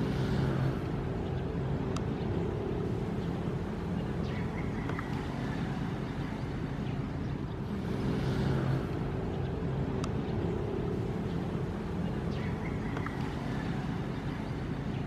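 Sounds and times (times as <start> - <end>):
faint clicks: 1.9 - 2.2, 10.0 - 10.2.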